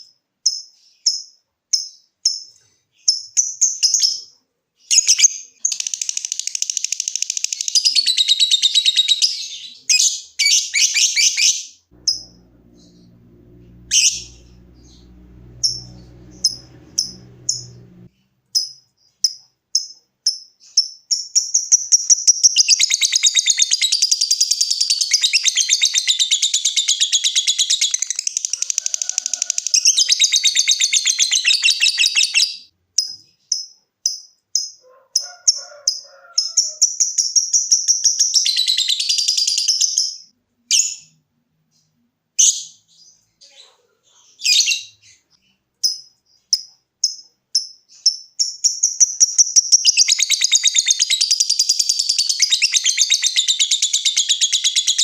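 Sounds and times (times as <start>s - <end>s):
lovebird chirping and trilling: 4.9s - 17.8s, 20.6s - 32.7s, 47.9s - 55.0s.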